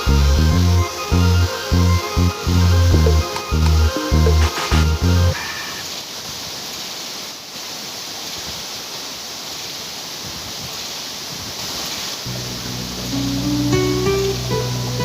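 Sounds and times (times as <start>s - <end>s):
music with low sustained tones: 0.0s - 5.4s, 12.3s - 15.0s
waterfall rushing: 0.0s - 15.0s.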